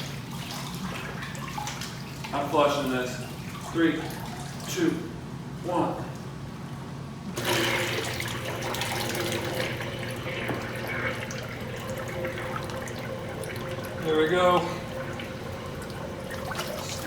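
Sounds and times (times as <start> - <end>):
rush of draining liquid: 7.4 - 17.0
toilet flushing: 7.4 - 17.0.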